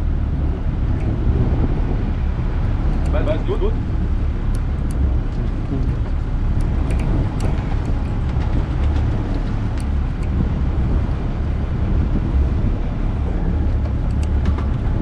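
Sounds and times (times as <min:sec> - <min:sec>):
boat engine rumble: 0:00.0 - 0:15.0
water noise: 0:00.0 - 0:15.0
wind noise: 0:00.0 - 0:15.0
faint clicks: 0:02.9 - 0:03.2, 0:04.4 - 0:10.4, 0:13.8 - 0:15.0.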